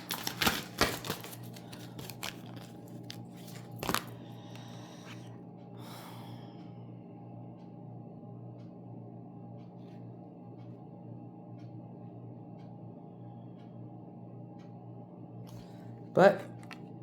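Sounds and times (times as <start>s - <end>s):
cards snapping and rustling: 0.0s - 5.2s, 16.5s - 16.8s
steady low hum: 0.0s - 17.0s.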